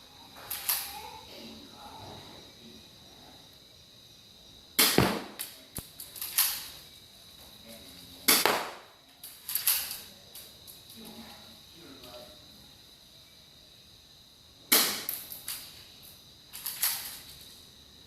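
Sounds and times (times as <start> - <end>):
airsoft pistol snapping: 4.8 - 6.6, 8.3 - 8.9, 14.7 - 15.5.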